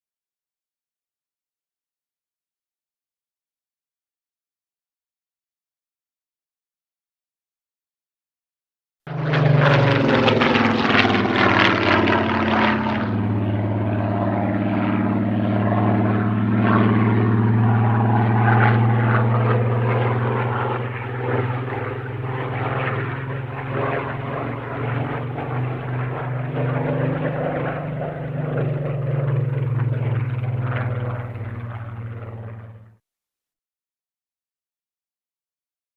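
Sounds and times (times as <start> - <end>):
propeller aircraft engine running: 9.1 - 33.0.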